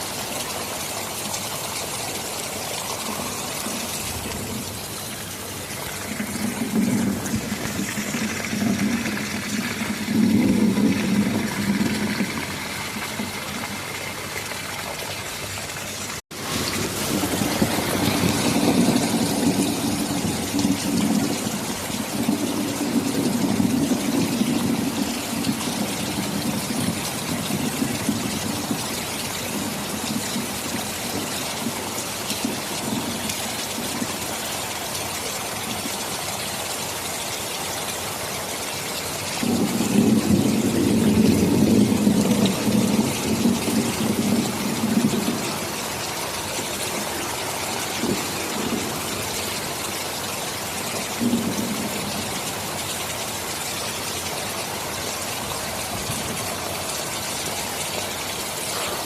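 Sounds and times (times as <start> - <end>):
heavy rain: 0.0 - 59.0
thunder rumbling: 2.5 - 14.9, 15.5 - 34.4, 39.3 - 52.9.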